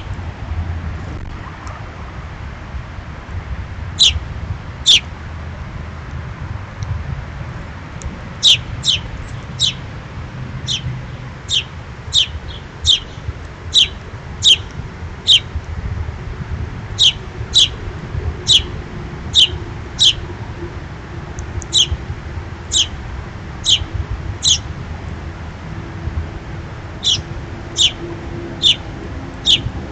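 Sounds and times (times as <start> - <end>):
steady low rumble: 0.0 - 29.9
songbird chirping: 4.0 - 4.2, 4.8 - 5.0, 8.4 - 9.8, 10.6 - 14.7, 15.3 - 15.5, 17.0 - 17.8, 18.5 - 18.7, 19.3 - 20.2, 21.6 - 22.0, 22.7 - 23.0, 23.6 - 24.7, 27.0 - 29.7.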